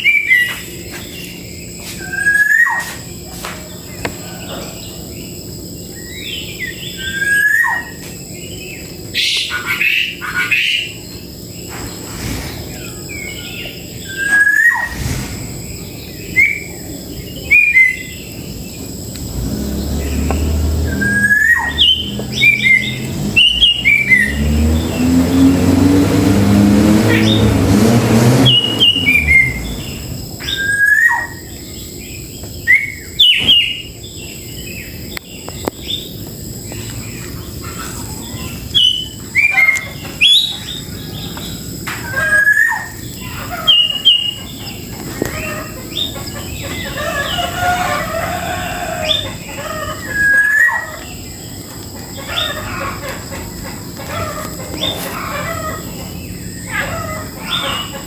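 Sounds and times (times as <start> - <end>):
bird whistled chirps: 2.0 - 3.0, 6.0 - 8.0, 13.3 - 15.0, 20.9 - 24.4, 28.5 - 31.6, 42.1 - 43.0, 50.1 - 51.1.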